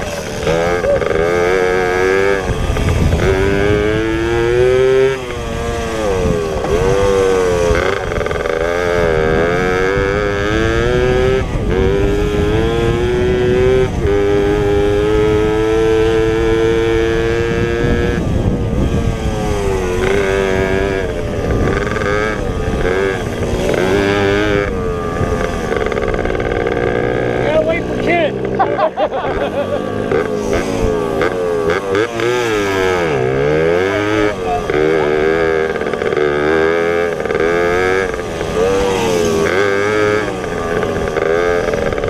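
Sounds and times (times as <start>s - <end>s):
motorbike engine revving: 0.0s - 42.0s.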